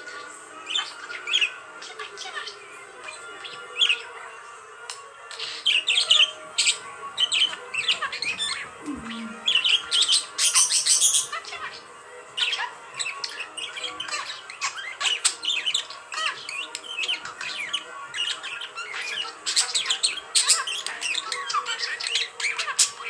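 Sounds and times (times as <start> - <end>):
budgerigar chattering: 5.4 - 11.8.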